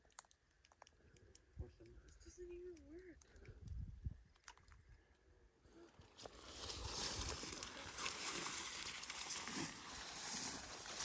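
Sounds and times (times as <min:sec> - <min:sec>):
footsteps through wet brush: 0:06.2 - 0:11.0.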